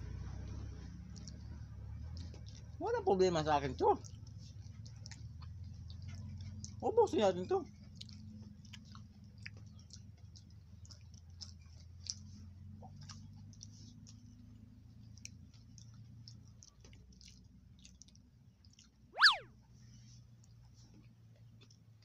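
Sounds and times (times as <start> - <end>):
person chewing sticky food: 0.0 - 19.4, 20.2 - 22.0
wet mouth clicks and lip smacks: 0.4 - 2.8, 3.7 - 6.8, 7.7 - 14.3, 15.0 - 19.4
high chirp sliding down: 19.2 - 19.4.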